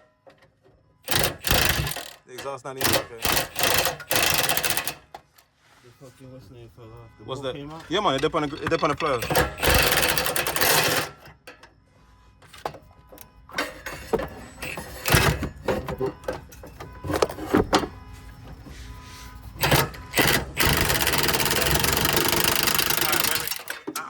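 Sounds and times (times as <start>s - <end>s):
impact wrench hammering: 1.0s - 2.2s, 2.8s - 5.2s, 8.1s - 11.6s, 19.6s - 24.0s
metallic clanks of tools: 7.8s - 11.8s, 12.4s - 17.6s, 22.6s - 24.0s.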